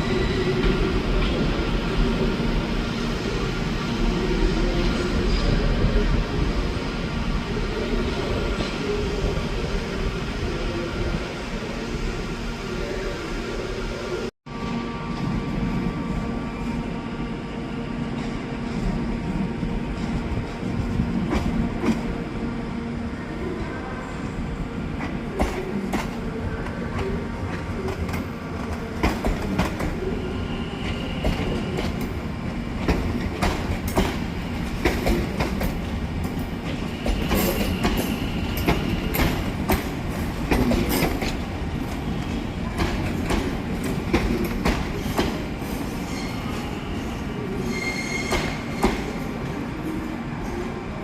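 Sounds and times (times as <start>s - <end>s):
train rumbling on rails: 0.0s - 51.0s
high-pitched wheel squeals: 46.0s - 49.0s.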